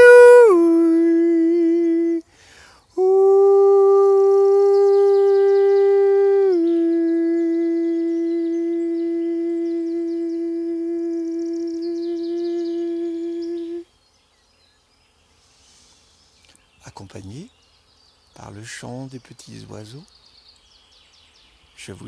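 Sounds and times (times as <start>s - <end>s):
man singing long note: 0.0s - 2.2s, 3.0s - 13.8s
small birds chirping: 4.2s - 22.0s.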